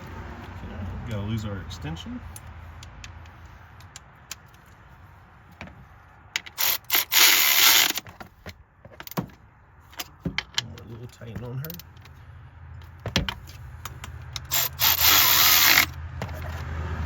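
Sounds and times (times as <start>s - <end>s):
ratchet wrench ratcheting: 6.4s - 8.0s, 13.3s - 16.0s.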